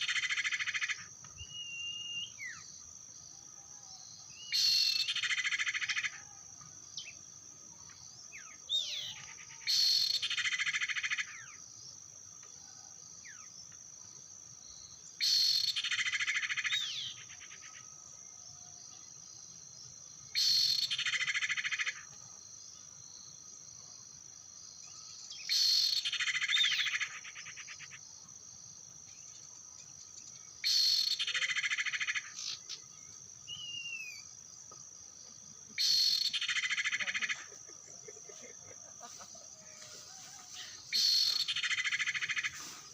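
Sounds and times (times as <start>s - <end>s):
high insect drone: 0.0s - 42.9s
recorded bird chirping: 0.0s - 42.9s
short bird calls: 40.3s - 42.9s.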